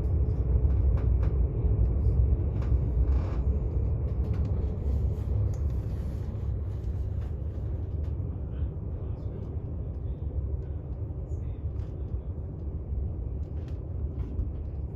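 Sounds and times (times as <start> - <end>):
moving train rumble: 0.0 - 14.9.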